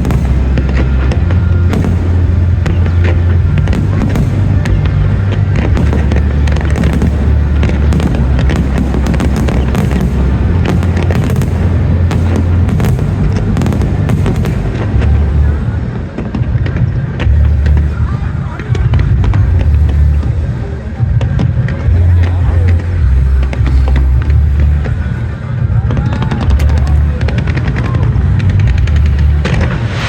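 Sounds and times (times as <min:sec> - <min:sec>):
loud music with heavy bass: 0:00.0 - 0:15.9
fireworks crackling and bursting: 0:00.0 - 0:30.0.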